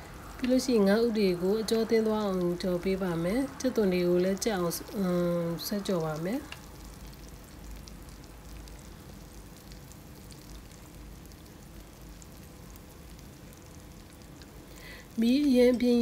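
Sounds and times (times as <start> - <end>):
food sizzling in oil: 0.3 - 16.0
small crackles: 4.2 - 16.0.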